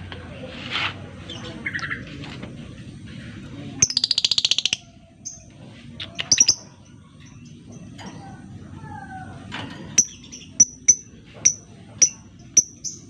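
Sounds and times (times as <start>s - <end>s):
bird chattering trill: 3.8s - 6.8s, 10.0s - 13.0s
bird chirps: 10.0s - 13.0s.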